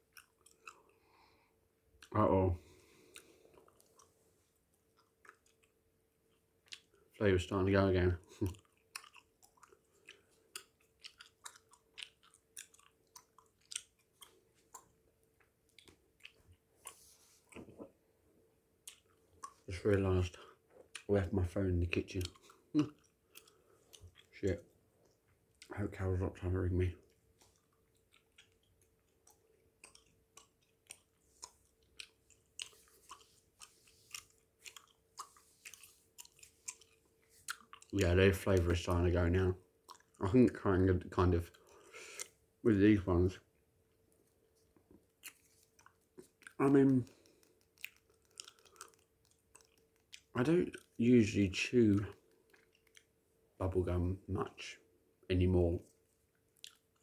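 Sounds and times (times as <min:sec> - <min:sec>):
gum chewing wet smacks: 0:00.0 - 0:01.1, 0:02.9 - 0:07.1, 0:08.2 - 0:18.0, 0:18.8 - 0:21.1, 0:21.9 - 0:25.8, 0:27.0 - 0:38.8, 0:39.8 - 0:40.2, 0:41.4 - 0:42.4, 0:44.6 - 0:51.0, 0:51.9 - 0:53.2, 0:55.8 - 0:57.0.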